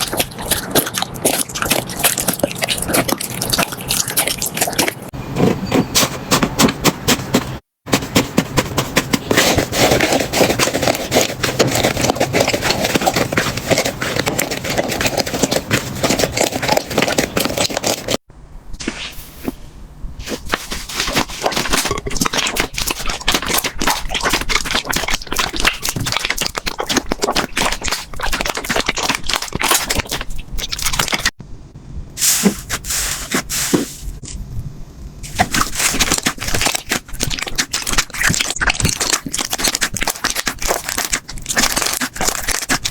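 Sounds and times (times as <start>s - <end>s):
slime crackling and popping: 20.4s - 31.4s, 35.3s - 42.9s.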